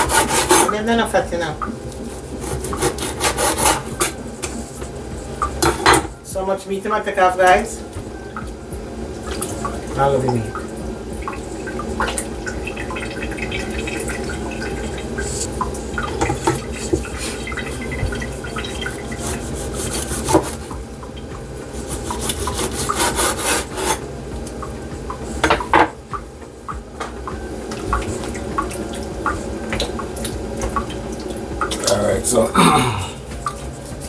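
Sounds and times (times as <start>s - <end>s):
knife scraping and cutting meat: 0.0s - 0.8s, 2.3s - 4.7s, 18.8s - 20.7s, 21.8s - 24.0s.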